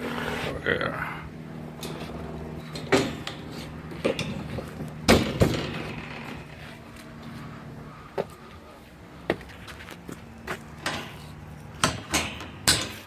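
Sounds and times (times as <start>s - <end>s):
steady low hum: 0.0s - 13.0s
metal clanks and knocks: 1.8s - 6.7s, 10.5s - 13.0s.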